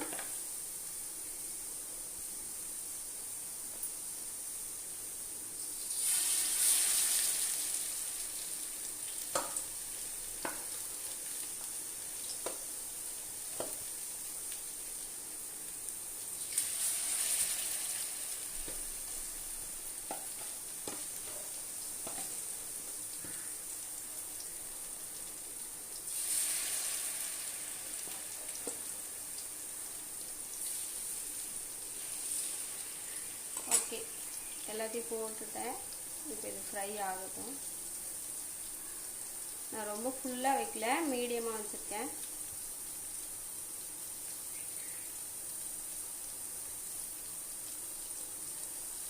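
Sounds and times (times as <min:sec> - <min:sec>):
chicken sizzling in hot oil: 0:00.0 - 0:49.0.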